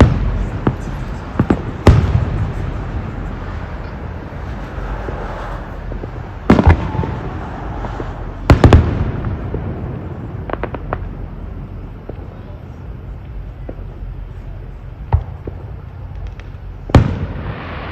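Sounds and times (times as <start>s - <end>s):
fireworks bangs: 0.0s - 12.5s, 15.1s - 17.9s
faint fireworks crackles: 0.0s - 17.9s
steady background noise: 0.0s - 17.9s.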